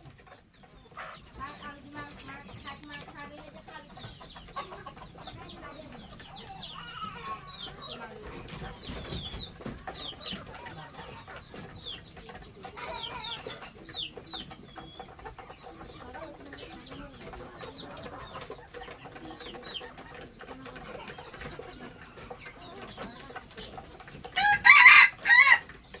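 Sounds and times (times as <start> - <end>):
chickens clucking: 0.0 - 26.0
rooster crowing: 24.4 - 25.6.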